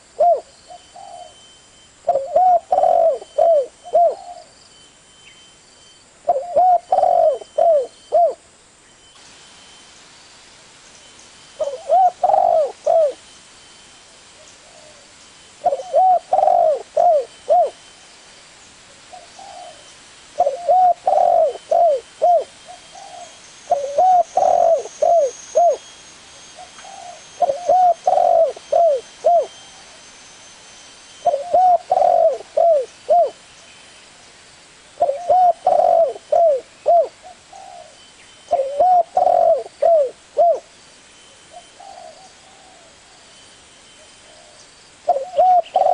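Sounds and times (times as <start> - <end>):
dove cooing: 0.0 - 1.4, 2.1 - 4.5, 6.3 - 8.4, 11.6 - 13.2, 14.6 - 17.8, 19.1 - 25.8, 26.6 - 30.0, 31.2 - 33.4, 35.0 - 40.7, 41.5 - 43.1, 44.2 - 45.9.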